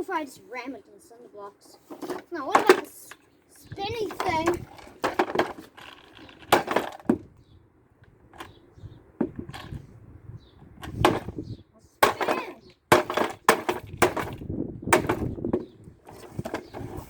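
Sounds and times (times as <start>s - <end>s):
plastic toy car parts knocking: 2.0s - 3.2s.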